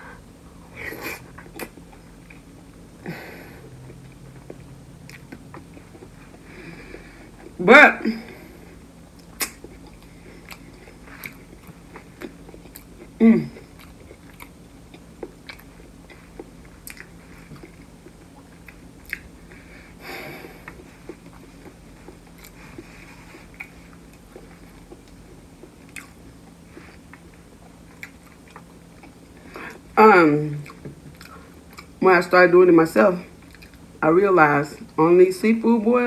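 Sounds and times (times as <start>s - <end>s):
wet chewing and smacking: 1.3s - 2.8s, 3.9s - 7.6s, 9.0s - 19.6s, 20.6s - 29.9s, 30.6s - 32.0s, 33.4s - 33.9s
person humming: 13.2s - 13.7s.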